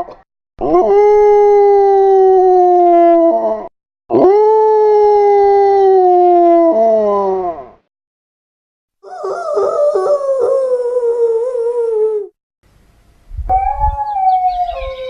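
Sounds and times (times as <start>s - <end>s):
dog howling: 9.0s - 12.3s, 13.5s - 15.0s.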